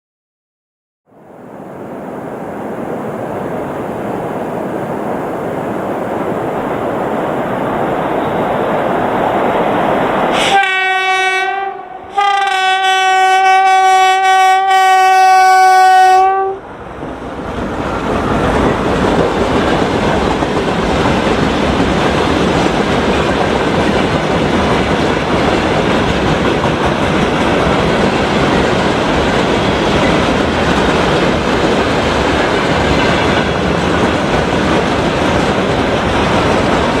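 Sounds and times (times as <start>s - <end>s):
freight train rumbling past: 1.2s - 37.0s
locomotive horn blasts: 10.4s - 16.6s
train wheel clatter: 17.0s - 37.0s.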